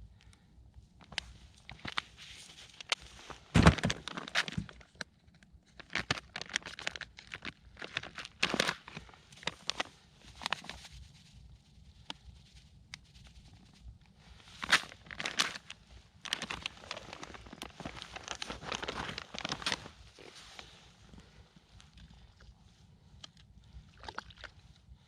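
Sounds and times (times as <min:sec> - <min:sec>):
snow and ice crunching: 0:16.2 - 0:20.9.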